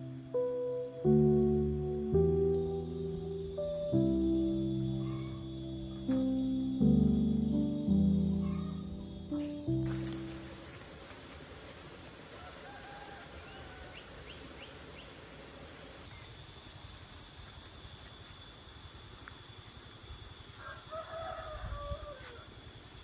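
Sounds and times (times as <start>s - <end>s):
steady high-pitched tone: 0.0s - 11.4s
rooster crowing: 12.2s - 14.6s, 20.6s - 22.6s.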